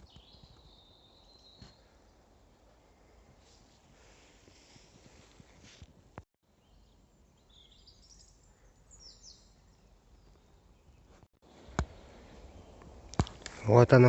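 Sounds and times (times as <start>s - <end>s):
birds chirping: 0.0s - 2.3s, 6.5s - 14.0s.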